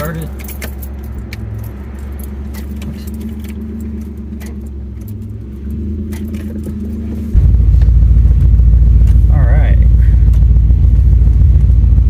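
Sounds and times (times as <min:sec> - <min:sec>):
keys jingling: 0:00.0 - 0:06.8
car engine idling: 0:00.0 - 0:12.0.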